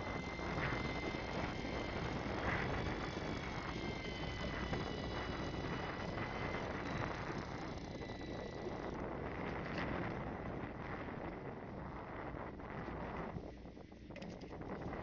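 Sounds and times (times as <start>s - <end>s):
sea noise: 0.0s - 11.0s
thin high whine: 0.0s - 15.0s
wind: 0.0s - 15.0s.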